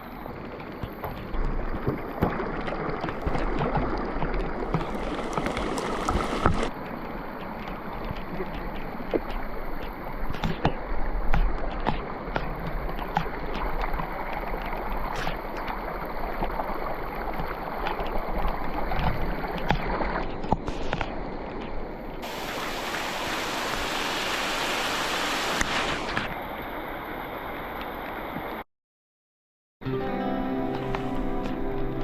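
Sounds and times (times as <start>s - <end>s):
running water: 0.0s - 28.6s
wind rumbling on microphone: 0.0s - 28.6s
heavy rain: 22.2s - 26.2s.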